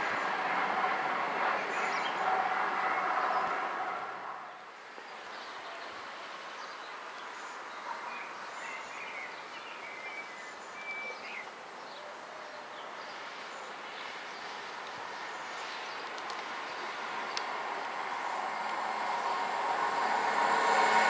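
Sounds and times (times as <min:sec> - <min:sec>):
distant train approaching: 0:00.0 - 0:04.7, 0:14.4 - 0:21.0.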